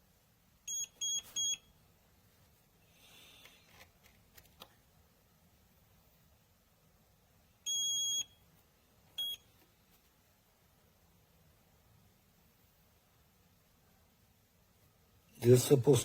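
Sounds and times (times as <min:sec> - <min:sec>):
keypad lock beeps: 0:00.7 - 0:01.6, 0:07.7 - 0:08.3, 0:09.2 - 0:09.4.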